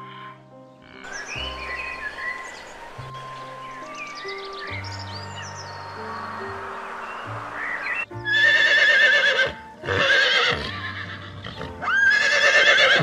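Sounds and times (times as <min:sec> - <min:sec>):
horse whinnying: 0:08.2 - 0:13.0.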